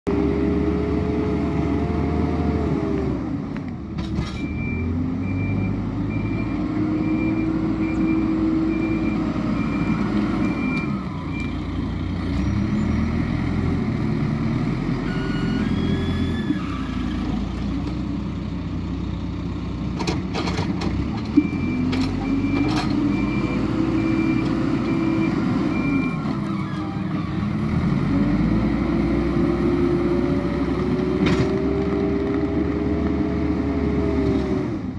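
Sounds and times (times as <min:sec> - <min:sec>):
diesel engine revving: 0:00.1 - 0:34.9
reversing alarm beeping: 0:04.4 - 0:11.6, 0:15.0 - 0:16.6, 0:21.4 - 0:27.4.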